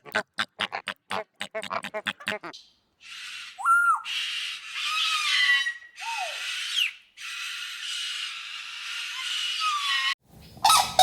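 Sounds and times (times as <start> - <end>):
squawking whistle-like calls: 2.4 - 11.0.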